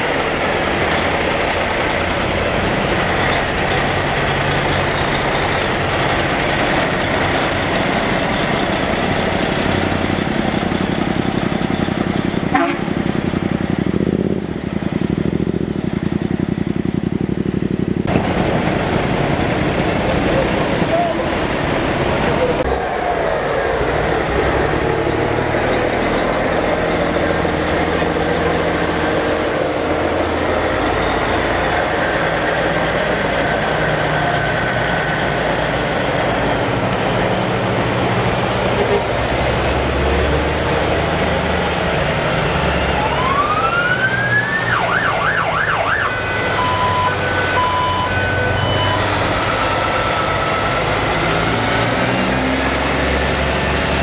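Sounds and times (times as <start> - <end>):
truck diesel engines running: 0.0 - 54.0
siren wailing and yelping: 42.5 - 51.0.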